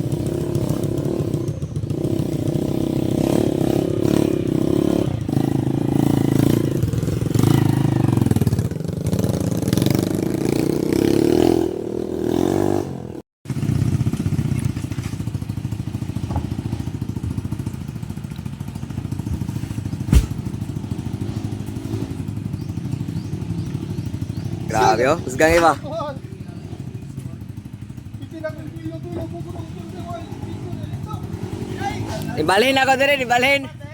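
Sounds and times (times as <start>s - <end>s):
motorcycle engine running: 0.0s - 33.9s
sharp knock: 20.1s - 20.5s.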